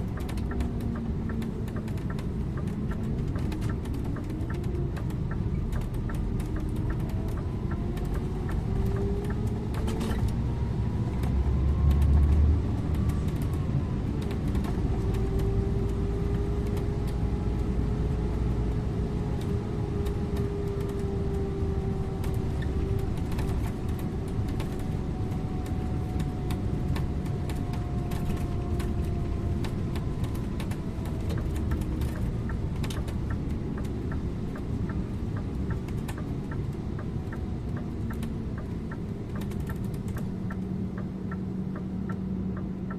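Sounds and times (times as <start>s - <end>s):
bus drivetrain rumble: 0.0s - 42.9s
engine and gearbox whine: 0.0s - 42.9s
small clicks and rattles: 22.1s - 40.6s.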